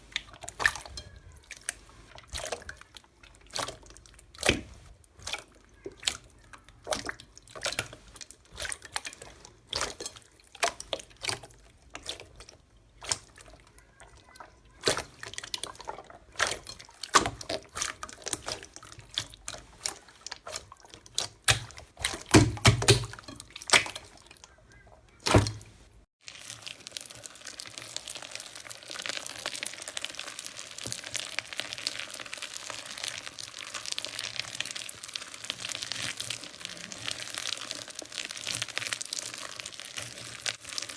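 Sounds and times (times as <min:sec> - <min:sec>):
wet slime pops and clicks: 0:21.2 - 0:24.1
dense steady crackling: 0:24.4 - 0:40.9.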